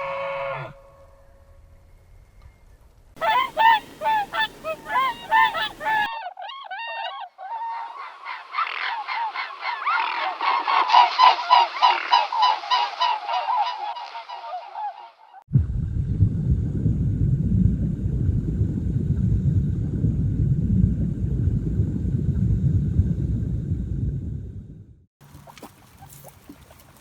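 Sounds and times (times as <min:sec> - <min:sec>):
flock calling: 0:03.2 - 0:15.4
waterfowl honking: 0:03.2 - 0:15.4, 0:25.2 - 0:27.0.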